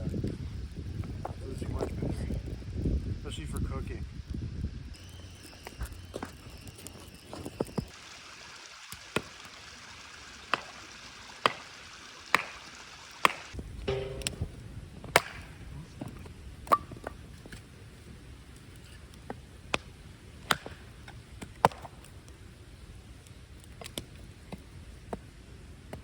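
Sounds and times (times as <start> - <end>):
axe chopping firewood: 20.5 - 21.9.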